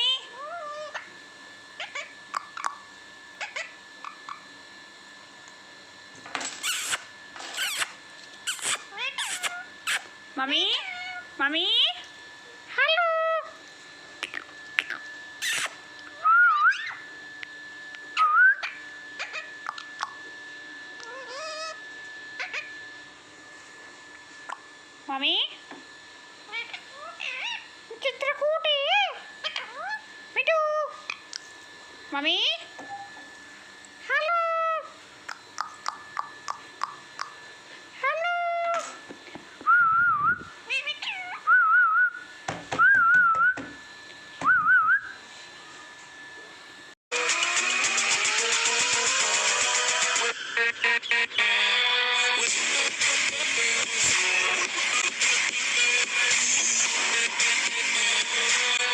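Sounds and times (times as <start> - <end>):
parrot calling: 0.0 - 1.1, 1.8 - 4.5, 6.4 - 12.1, 12.7 - 13.6, 14.2 - 17.1, 18.2 - 20.2, 21.0 - 21.8, 22.4 - 22.8, 26.5 - 27.7, 28.7 - 31.5, 34.0 - 35.0, 38.0 - 39.0, 40.6 - 41.8, 47.2 - 58.9.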